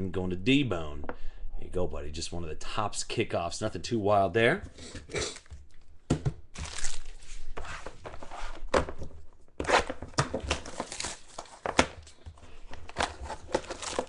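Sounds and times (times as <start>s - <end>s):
foil wrapper crinkling and tearing: 6.6s - 7.3s, 10.5s - 12.2s, 13.2s - 14.0s.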